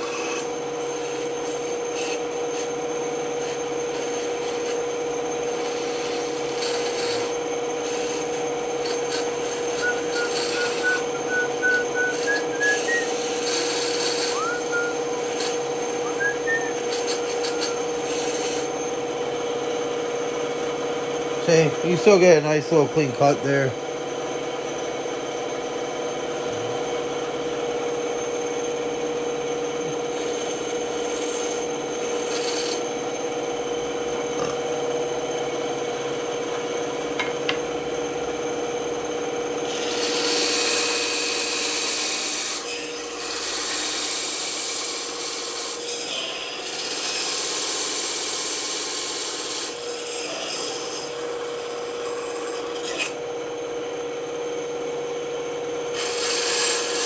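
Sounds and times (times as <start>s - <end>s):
saw blade cutting wood: 0.0s - 23.8s, 29.8s - 33.3s, 39.6s - 53.3s, 55.9s - 57.0s
band saw humming: 0.0s - 57.0s.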